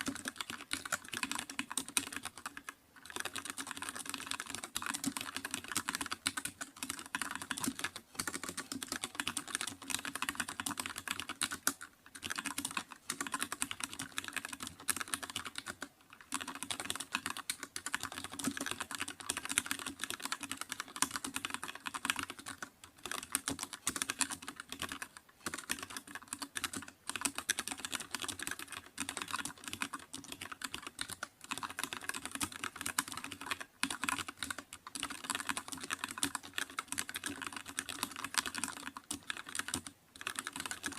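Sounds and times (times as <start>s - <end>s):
typing on computer keyboard: 0.0s - 40.9s.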